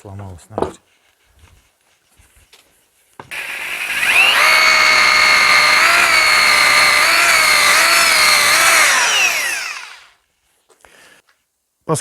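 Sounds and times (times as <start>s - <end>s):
rotary hammer drilling into brick: 3.3s - 10.2s.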